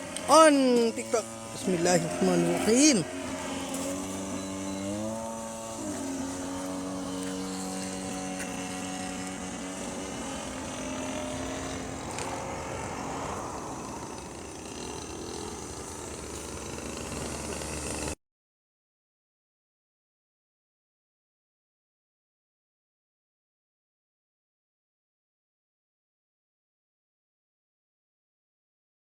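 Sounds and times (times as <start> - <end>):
model aircraft motor whine: 0.0 - 18.2.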